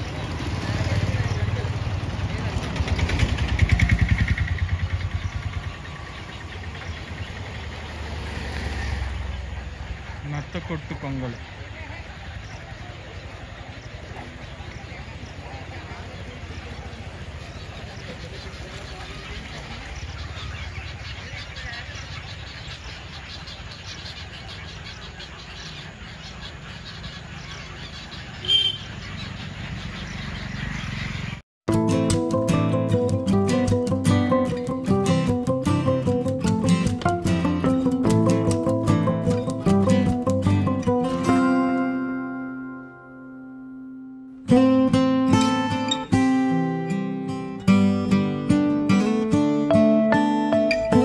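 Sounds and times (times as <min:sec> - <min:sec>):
vehicle engine idling: 0:00.0 - 0:23.3
birds calling and chattering: 0:00.0 - 0:31.4, 0:32.1 - 0:43.0, 0:44.4 - 0:51.0
sharp bird call: 0:28.4 - 0:29.0.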